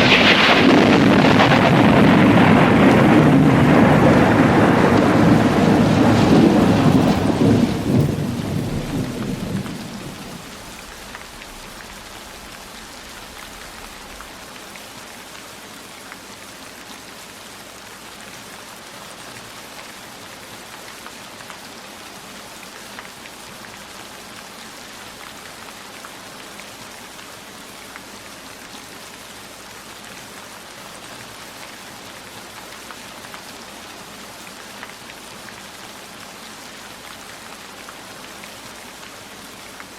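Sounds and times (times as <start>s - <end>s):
thunder rumbling: 0.0s - 14.4s
heavy steady rainfall: 0.0s - 39.9s.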